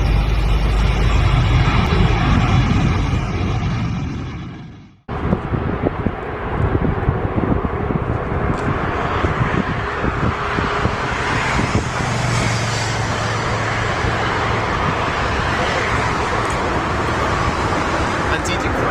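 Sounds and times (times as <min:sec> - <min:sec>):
choppy low rumble: 0:00.0 - 0:12.4
jet engine rushing: 0:00.0 - 0:18.9.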